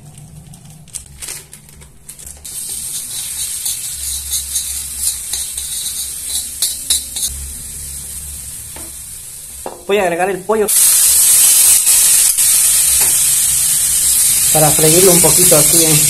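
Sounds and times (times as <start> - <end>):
garlic frying in hot oil: 2.5 - 9.7, 10.7 - 16.0
spoon scraping metal wok: 2.6 - 7.5.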